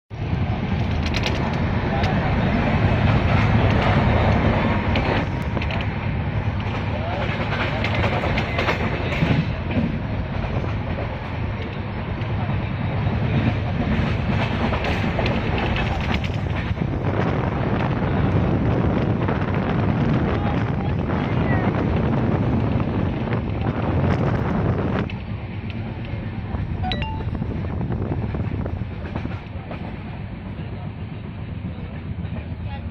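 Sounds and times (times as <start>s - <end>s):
train wheels rumbling on rails: 0.1s - 32.9s
wheels clicking over rail joints: 0.8s - 2.2s, 13.7s - 16.8s
high-pitched clink: 26.8s - 27.5s.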